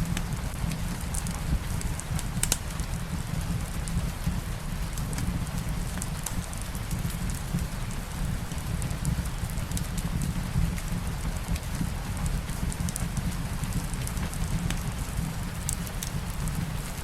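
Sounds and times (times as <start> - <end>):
steady rain: 0.0 - 17.0
fireplace crackling: 15.4 - 17.0.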